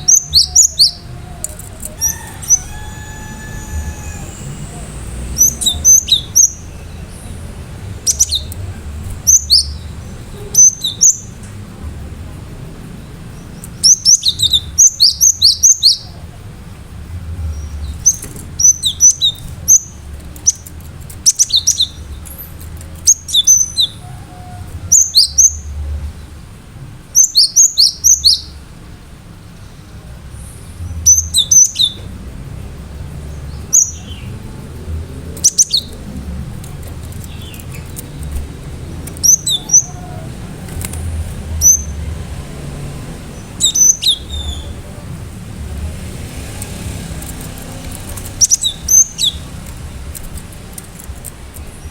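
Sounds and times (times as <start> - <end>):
bird singing whistled notes: 0.0 - 11.5, 13.3 - 16.3, 17.5 - 25.8, 27.2 - 28.6, 29.6 - 32.1, 33.2 - 34.5, 35.3 - 40.7, 41.5 - 42.1, 43.3 - 44.8, 46.7 - 49.8
low background hum: 0.0 - 27.1.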